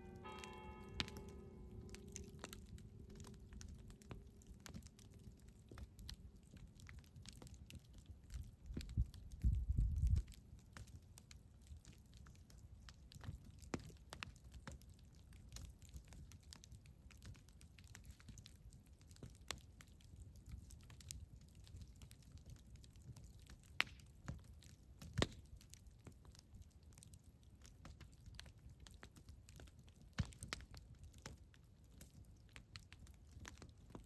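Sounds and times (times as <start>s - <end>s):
campfire crackling and popping: 0.0s - 34.0s
low rumble of burning fire: 0.0s - 34.0s.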